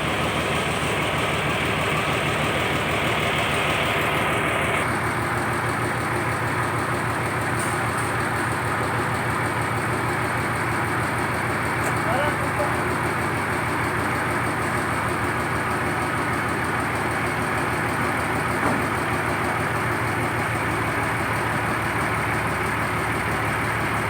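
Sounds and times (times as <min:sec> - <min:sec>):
boat engine droning: 0:00.0 - 0:04.9.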